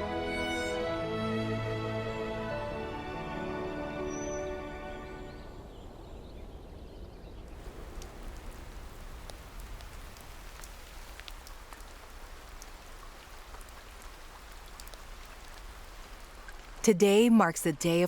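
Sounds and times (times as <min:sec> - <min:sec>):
rain falling: 0:07.5 - 0:18.0.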